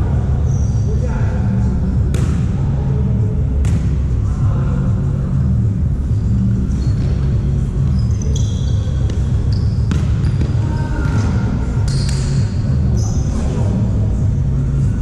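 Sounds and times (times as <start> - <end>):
low rumble of hall: 0.0 - 15.0
sneakers squeaking on court: 6.1 - 13.4.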